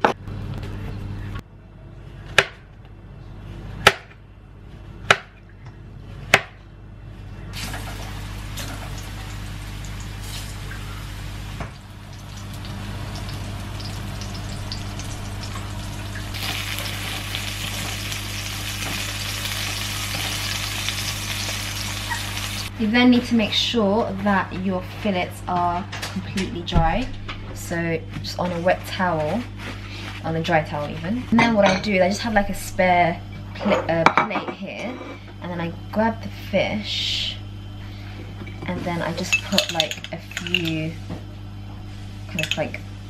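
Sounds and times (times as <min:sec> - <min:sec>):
slices sizzling in oil: 0:07.6 - 0:22.7.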